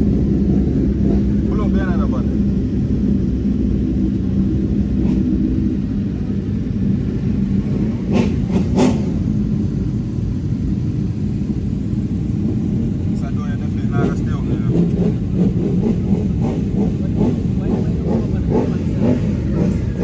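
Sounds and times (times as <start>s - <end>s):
motorcycle engines idling: 0.0s - 20.0s.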